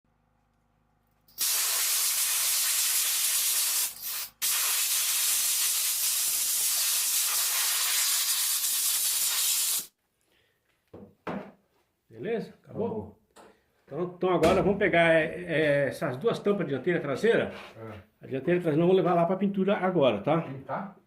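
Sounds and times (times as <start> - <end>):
compressed air jet hissing: 1.4 - 9.9.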